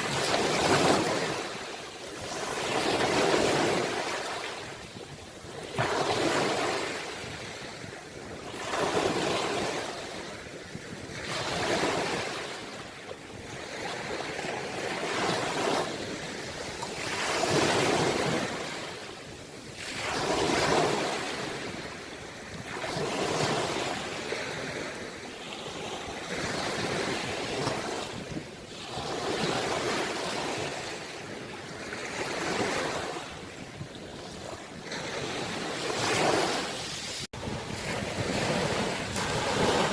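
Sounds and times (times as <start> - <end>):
ocean waves washing in: 34.5 - 39.9.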